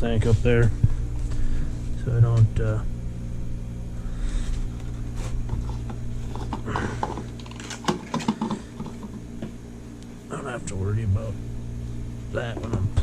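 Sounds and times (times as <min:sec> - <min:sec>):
steady low hum: 0:00.0 - 0:13.0
small clicks taps and rattles: 0:05.5 - 0:09.5.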